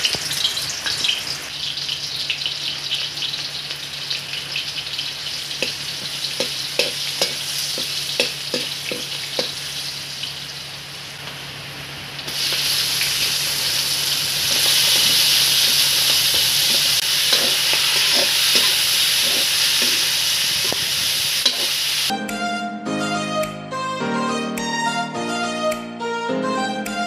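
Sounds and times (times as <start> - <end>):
onion and garlic sizzling in oil: 0.0 - 22.1
violin music: 22.1 - 27.0.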